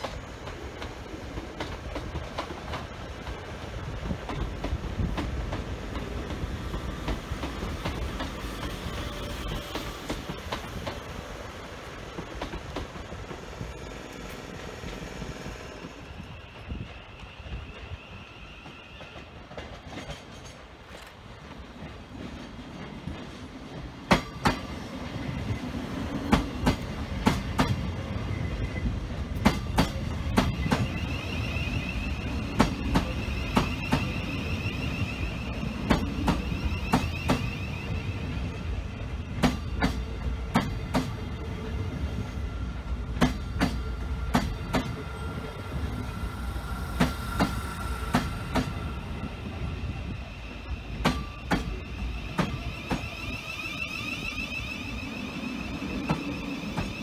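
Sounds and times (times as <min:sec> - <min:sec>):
train wheels rumbling: 0:00.0 - 0:57.0
high wheel squeal: 0:30.2 - 0:38.9, 0:43.9 - 0:57.0.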